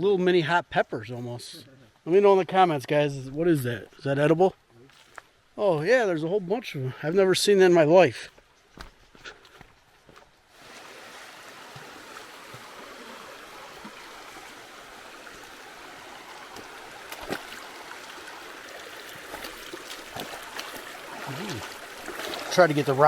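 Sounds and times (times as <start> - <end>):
river rushing over rocks: 10.6 - 23.0.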